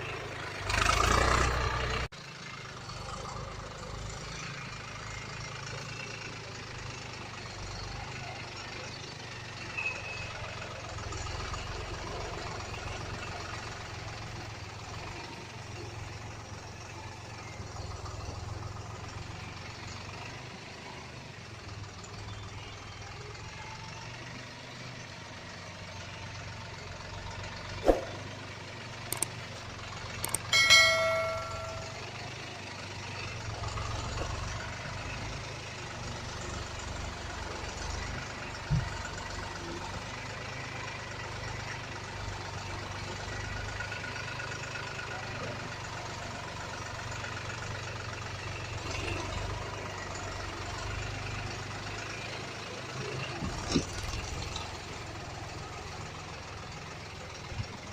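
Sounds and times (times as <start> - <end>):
diesel truck engine running: 0.0 - 57.9
sharp clicks: 29.1 - 29.4, 30.2 - 30.5
metallic bell-like ring: 30.3 - 32.3.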